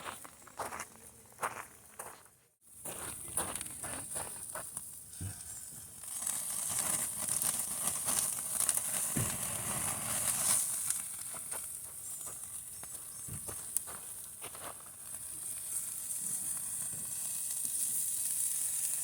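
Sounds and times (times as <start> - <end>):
campfire crackling: 0.0 - 19.0
hamburgers sizzling: 2.9 - 19.0.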